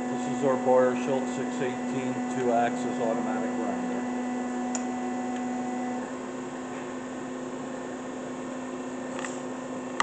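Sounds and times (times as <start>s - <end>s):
surface grinder humming: 0.0s - 5.9s.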